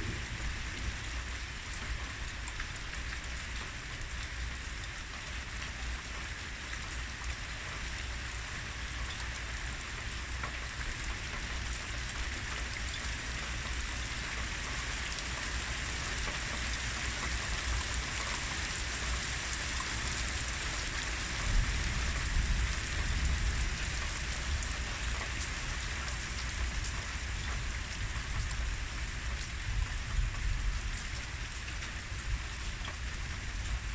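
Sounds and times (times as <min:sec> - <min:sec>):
low thunder rumble: 0:00.0 - 0:03.1
heavy rain falling: 0:00.0 - 0:33.9.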